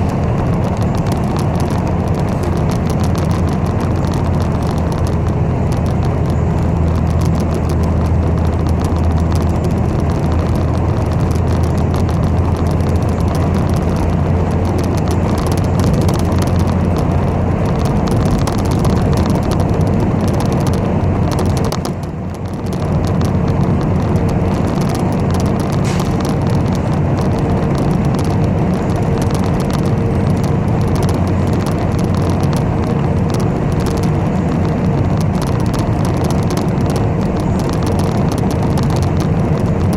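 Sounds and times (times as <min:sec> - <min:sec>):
bus engine and road rumble: 0:00.0 - 0:39.9.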